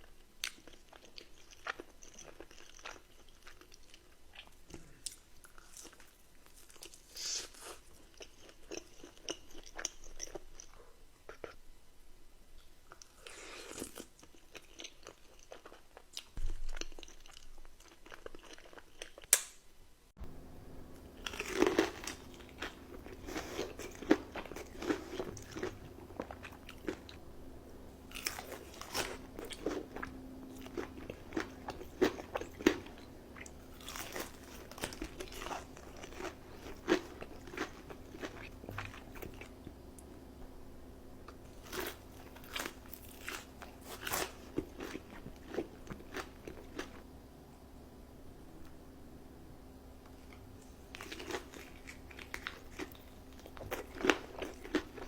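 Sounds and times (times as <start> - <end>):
steady low hum: 19.8 - 55.0
crunchy bites and chewing: 21.2 - 27.2, 28.0 - 39.7, 41.3 - 47.0, 50.3 - 55.0.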